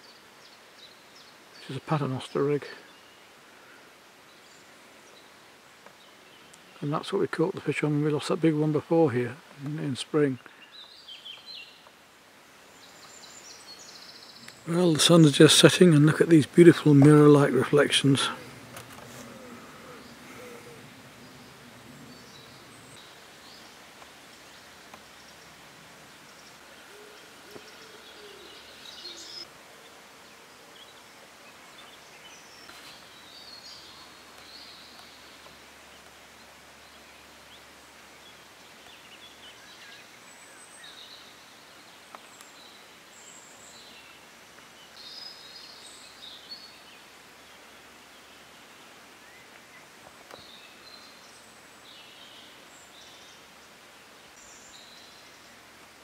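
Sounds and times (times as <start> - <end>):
faint background hiss: 0.0 - 56.0
bird chirps and calls: 26.4 - 29.5.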